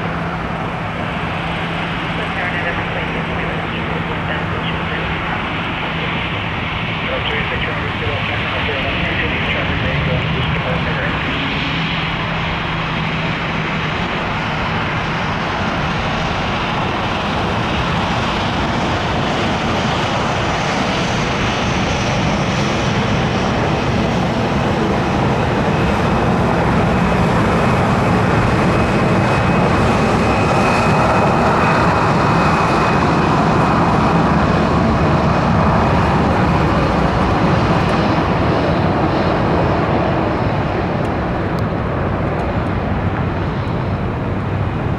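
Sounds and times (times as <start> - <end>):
jet engines rushing: 0.0 - 44.9.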